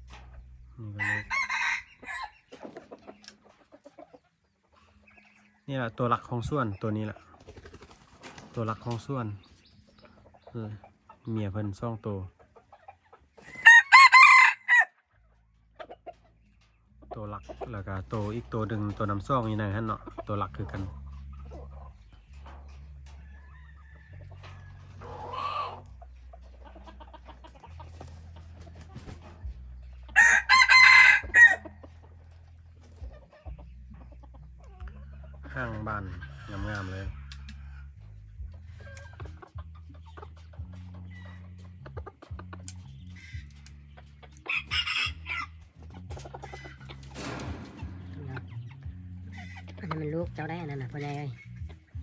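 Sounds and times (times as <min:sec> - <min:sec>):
background music: 0:00.0 - 0:12.3, 0:13.4 - 0:52.0
fowl clucking and calling: 0:00.0 - 0:52.0
rooster crowing: 0:01.0 - 0:02.3, 0:13.6 - 0:14.9, 0:30.2 - 0:31.6.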